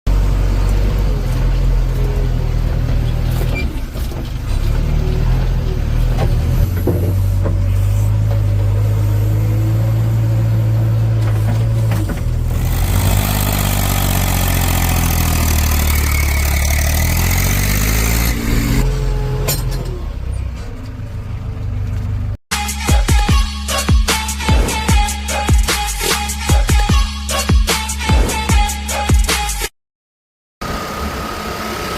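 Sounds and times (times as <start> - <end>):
diesel engine droning: 0.1 - 22.4, 30.6 - 31.9.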